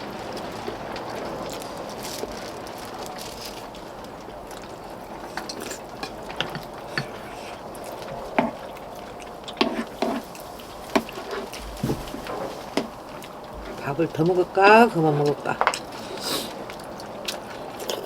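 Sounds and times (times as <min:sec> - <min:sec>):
utensils clinking against bowls: 0:05.1 - 0:18.0
background hiss: 0:15.9 - 0:17.2.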